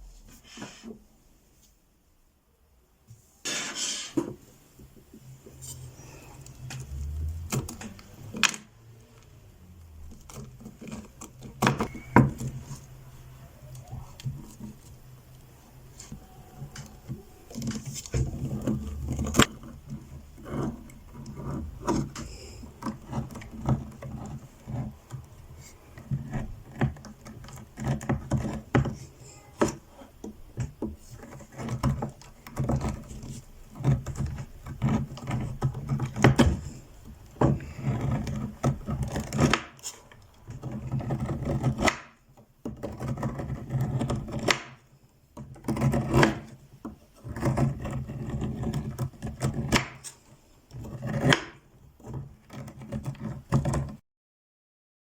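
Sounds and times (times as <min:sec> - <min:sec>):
rustling and knocks of household items: 0:15.9 - 0:54.0.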